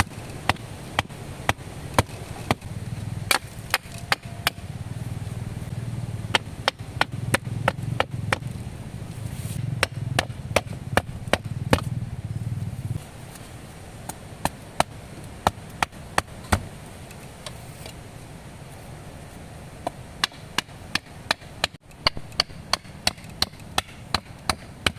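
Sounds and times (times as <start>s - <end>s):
wood being chopped: 0.0s - 4.7s, 6.3s - 8.6s, 9.8s - 11.9s, 14.0s - 16.7s, 19.8s - 24.9s
steady low drone: 2.2s - 13.2s.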